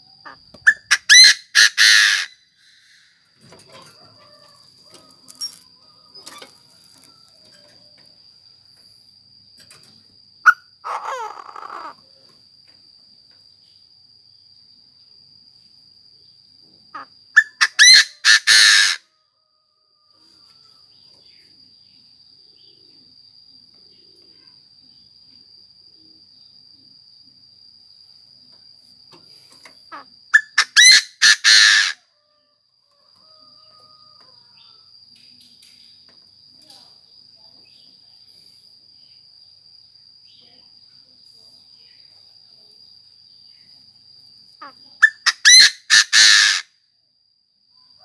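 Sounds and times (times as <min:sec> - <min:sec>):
bird harsh calls: 0:00.7 - 0:03.0, 0:10.5 - 0:12.0, 0:17.4 - 0:19.0, 0:29.9 - 0:32.0, 0:45.0 - 0:46.6
thin high-pitched whine: 0:03.2 - 0:10.2.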